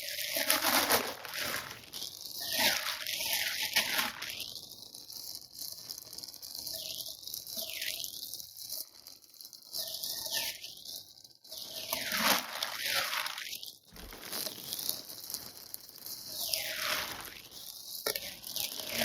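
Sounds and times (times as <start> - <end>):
plastic bags crinkling: 0.4 - 2.0, 12.0 - 19.0.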